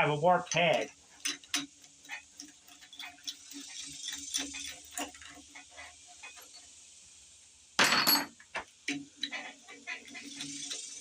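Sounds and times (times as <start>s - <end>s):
ratchet clicking on bolts: 0.5s - 6.5s.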